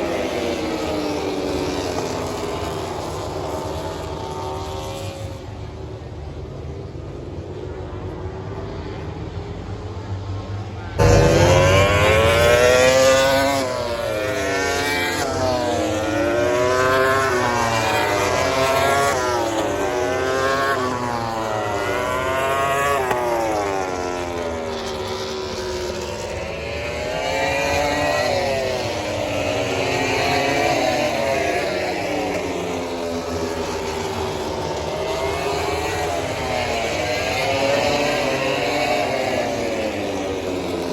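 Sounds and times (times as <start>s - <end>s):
racing motorcycles accelerating: 0.0s - 7.5s, 8.4s - 40.9s.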